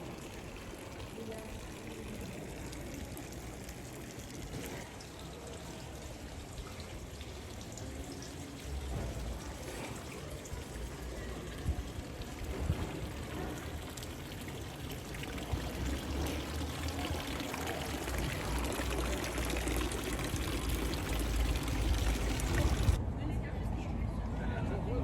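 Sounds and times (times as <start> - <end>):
water pouring and splashing: 0.0 - 23.0.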